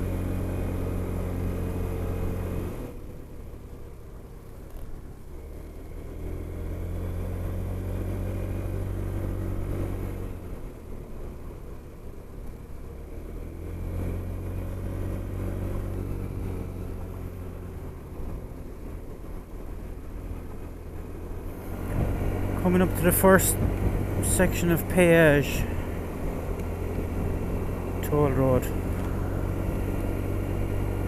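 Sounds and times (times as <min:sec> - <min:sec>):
wind and road noise: 0:00.0 - 0:31.0
scooter engine accelerating: 0:13.1 - 0:31.0.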